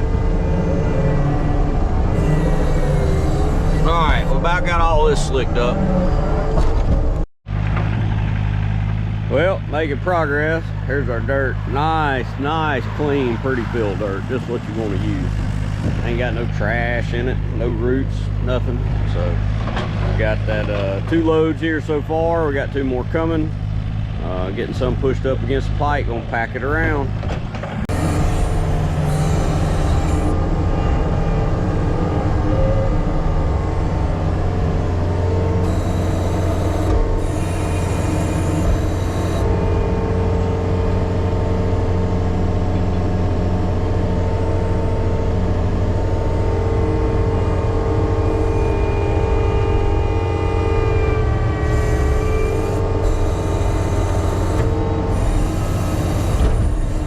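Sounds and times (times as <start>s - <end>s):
diesel engine under load: 0.0s - 57.0s
steady machine whine: 0.0s - 57.0s.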